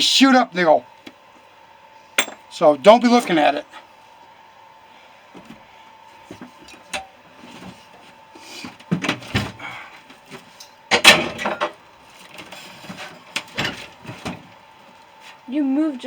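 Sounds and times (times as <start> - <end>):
metal knocks and clinks: 2.2 - 2.5.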